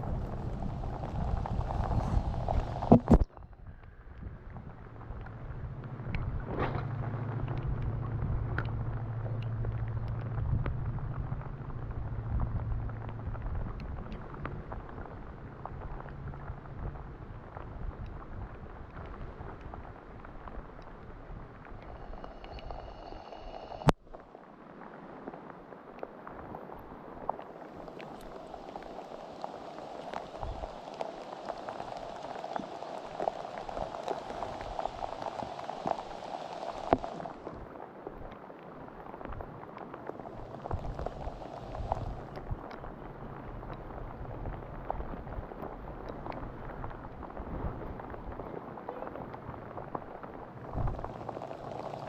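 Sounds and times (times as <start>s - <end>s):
rain drops ticking on surfaces: 0.0s - 52.0s
vehicle engine hum: 4.9s - 14.6s.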